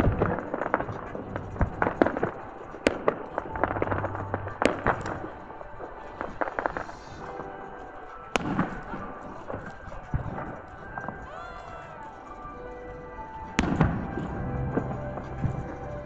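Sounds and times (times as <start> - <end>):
firework crackling: 0.0 - 16.0.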